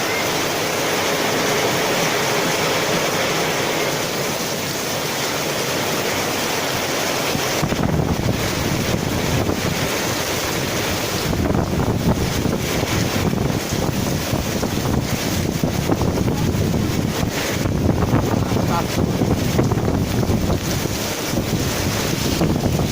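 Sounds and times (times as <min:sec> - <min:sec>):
heavy rain hissing: 0:00.0 - 0:22.9
wind gusts buffeting microphone: 0:00.1 - 0:22.9.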